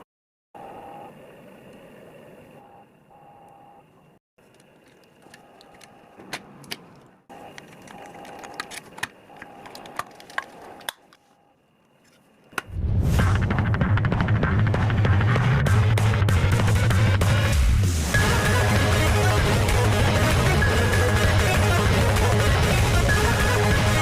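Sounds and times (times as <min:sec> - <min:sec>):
faint steady hum: 0:00.6 - 0:12.7.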